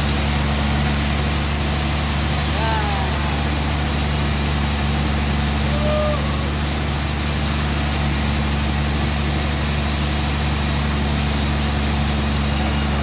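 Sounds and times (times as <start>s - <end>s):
engine droning steadily: 0.0s - 13.0s
short pitched call: 2.4s - 4.4s, 5.4s - 6.8s.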